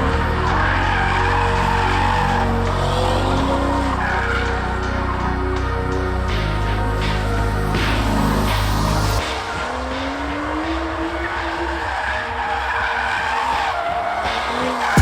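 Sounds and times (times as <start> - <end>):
tyres squealing and skidding: 0.0 - 5.2, 9.3 - 15.0
car engine revving: 0.0 - 7.5.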